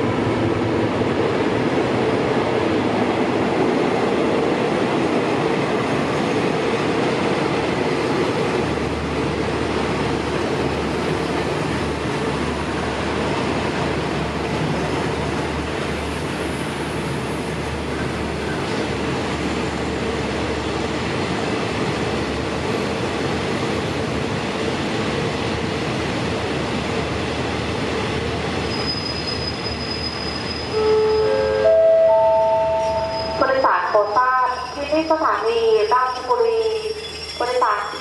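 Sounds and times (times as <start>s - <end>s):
train rail rumble: 0.0s - 38.0s
announcement chime: 31.3s - 34.0s.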